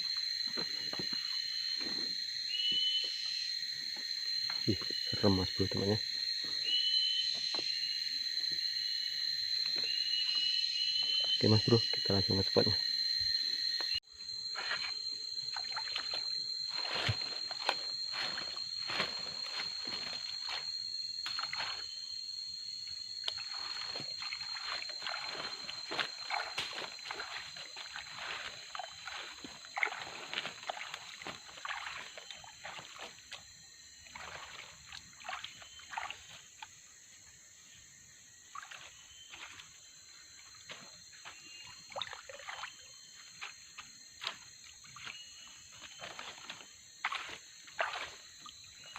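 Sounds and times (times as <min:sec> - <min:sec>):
high-pitched insect drone: 0:00.0 - 0:48.9
water sloshing with footsteps: 0:14.5 - 0:21.9, 0:23.2 - 0:36.7, 0:38.5 - 0:48.9.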